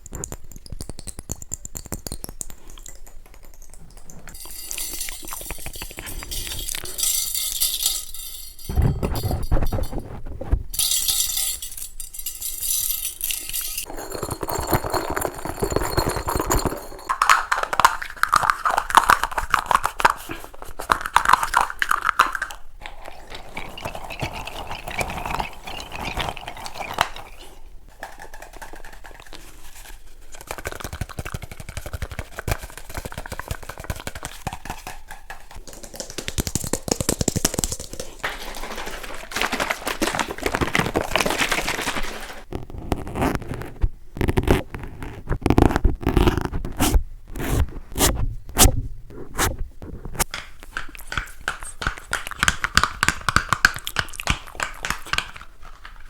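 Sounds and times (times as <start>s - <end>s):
handling small objects: 0.0s - 48.1s
scratching: 0.0s - 56.0s.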